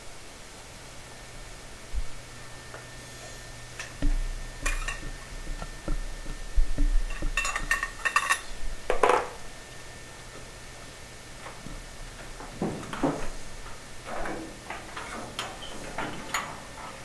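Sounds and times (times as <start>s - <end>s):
small metal parts clinking: 7.4s - 8.5s.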